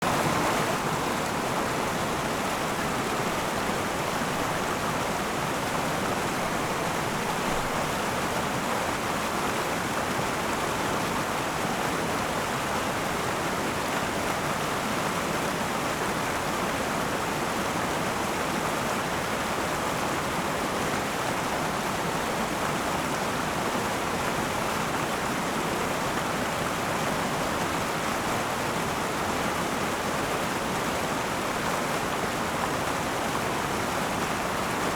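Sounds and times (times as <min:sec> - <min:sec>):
river flowing: 0:00.0 - 0:34.9.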